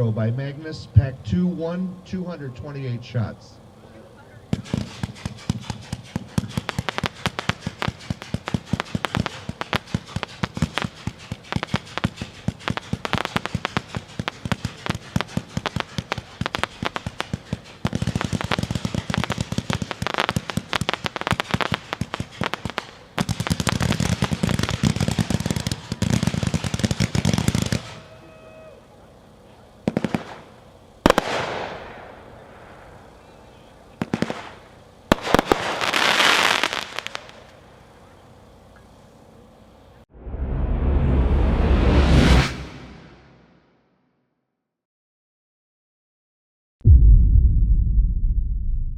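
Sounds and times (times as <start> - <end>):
firework bangs and crackles: 4.4 - 38.6
firework cake firing volleys: 4.4 - 39.9.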